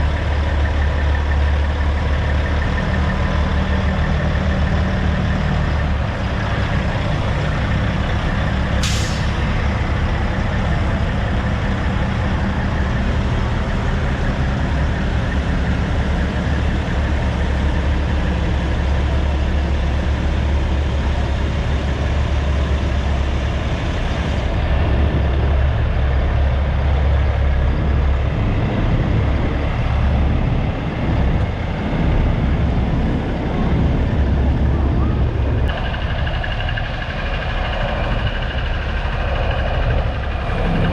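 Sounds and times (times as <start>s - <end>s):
truck diesel engine running: 0.0s - 40.9s
air brake hiss: 8.8s - 9.4s.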